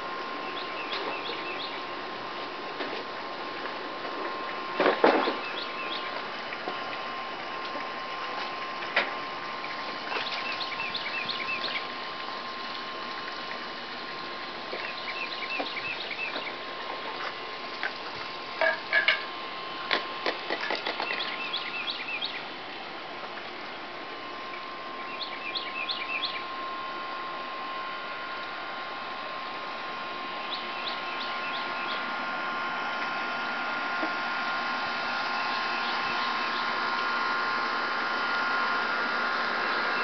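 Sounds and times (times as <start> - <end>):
outdoor background hiss: 0.0 - 40.0
songbird chirping: 25.0 - 26.5.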